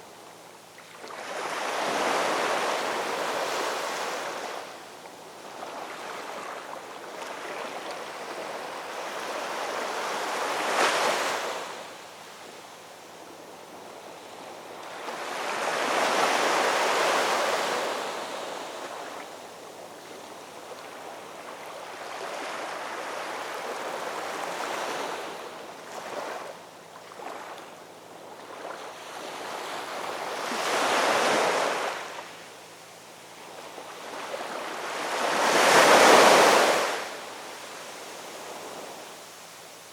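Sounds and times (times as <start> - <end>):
ocean waves breaking on shore: 14.6 - 32.4, 33.4 - 39.9.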